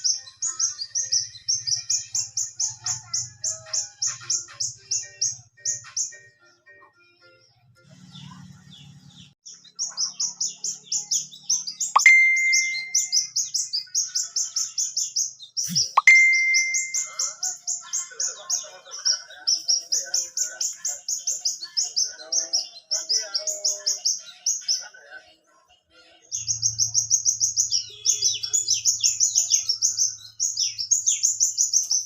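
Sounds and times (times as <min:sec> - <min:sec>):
bird high chirps: 0:08.0 - 0:24.8, 0:26.4 - 0:32.0
ringing tone: 0:12.0 - 0:13.2, 0:16.0 - 0:17.2.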